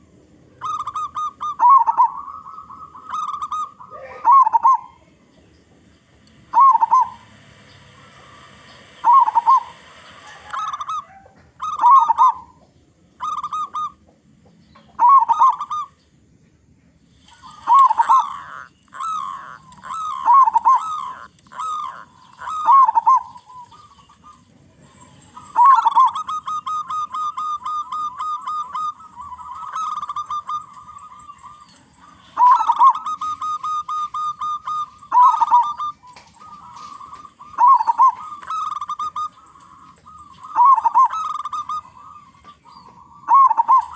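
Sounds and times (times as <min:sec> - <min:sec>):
doves cooing: 0:00.0 - 0:43.9.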